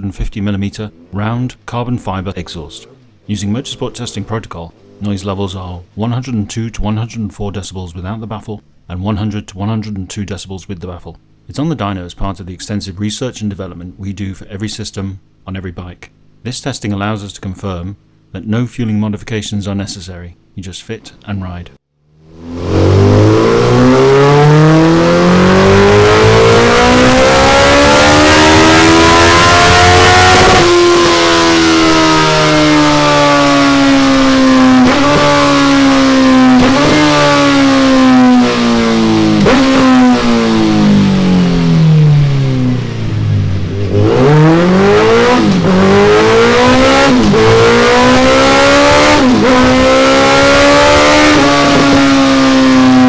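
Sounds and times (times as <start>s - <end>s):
motorcycle engine revving: 0.6s - 6.0s, 22.1s - 53.0s.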